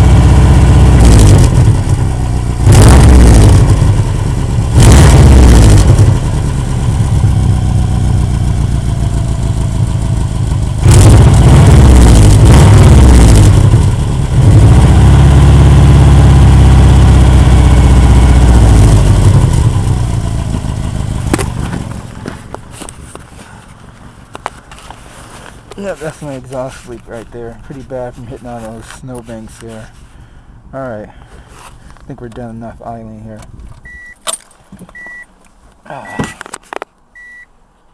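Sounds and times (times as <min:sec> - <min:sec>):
car engine revving with exhaust leak: 0:00.0 - 0:22.8.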